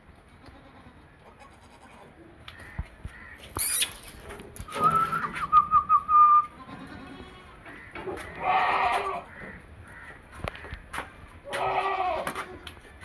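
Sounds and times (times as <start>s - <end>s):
goat bleating: 0.3s - 2.2s, 6.4s - 7.6s, 8.2s - 9.3s, 11.4s - 12.7s.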